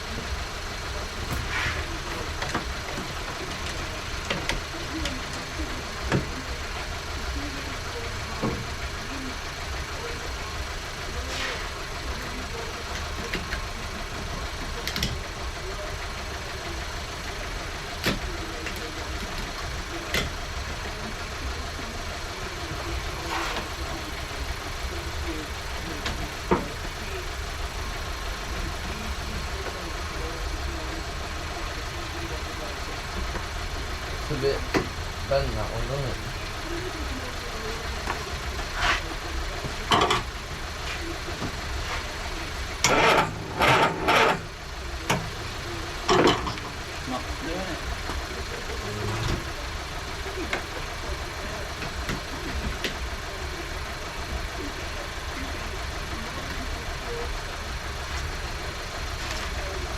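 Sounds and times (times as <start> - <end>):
low engine-like rumble: 0.0 - 59.9
steady low hum: 0.0 - 59.9
tools scraping and rattling metal: 23.2 - 23.8, 42.8 - 44.5.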